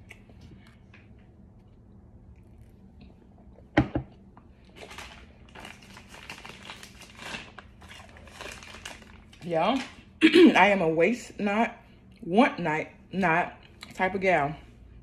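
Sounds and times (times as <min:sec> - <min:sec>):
plastic packaging crinkling: 0:04.7 - 0:10.0.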